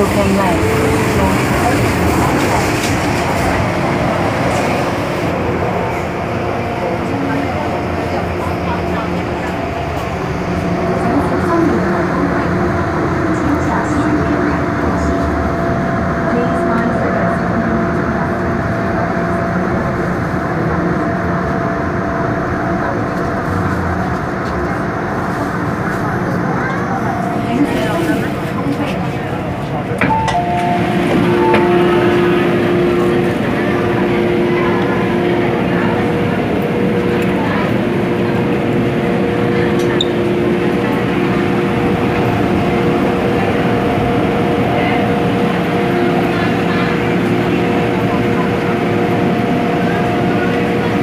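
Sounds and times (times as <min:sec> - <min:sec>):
train wheels rumbling: 0:00.0 - 0:21.2
train wheels rumbling on rail: 0:00.0 - 0:51.0.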